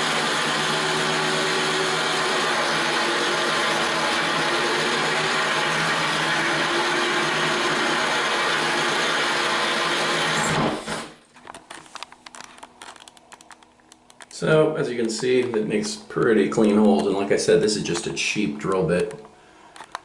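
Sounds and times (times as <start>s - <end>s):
drill grinding into tile: 0.0s - 11.2s.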